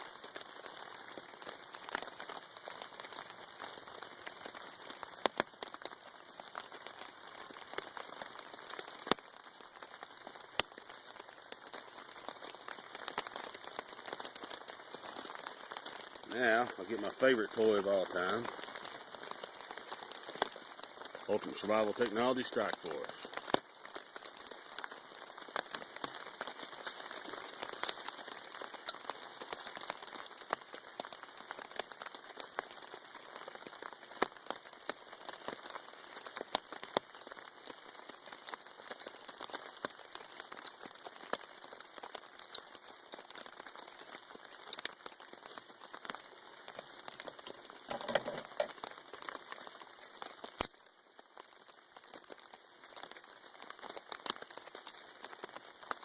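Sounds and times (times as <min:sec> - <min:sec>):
rain on a tarp: 0:00.0 - 0:56.0
tarp crinkling: 0:11.0 - 0:30.8, 0:41.8 - 0:50.9.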